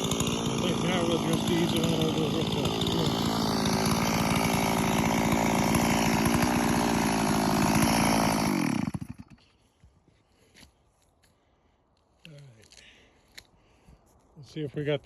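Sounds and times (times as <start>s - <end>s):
chainsaw running and winding down: 0.0s - 9.4s.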